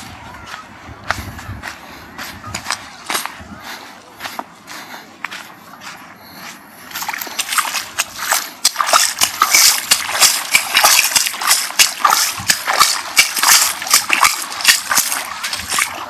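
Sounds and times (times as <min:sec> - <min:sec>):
seawater splashing: 0:06.9 - 0:16.0.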